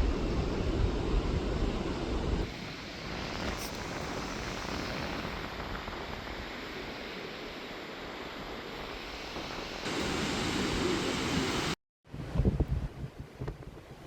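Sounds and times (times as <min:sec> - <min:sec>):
sea surf rushing: 0:00.0 - 0:11.8
wind buffeting microphone: 0:10.8 - 0:14.0.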